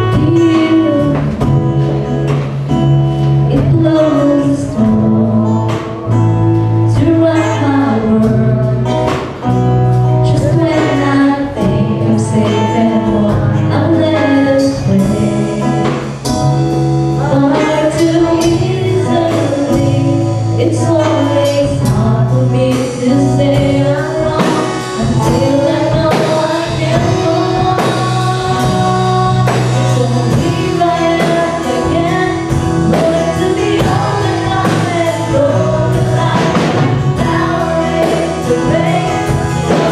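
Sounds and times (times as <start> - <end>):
instrumental backing with steady beat: 0.0 - 39.9
person singing: 0.0 - 39.9.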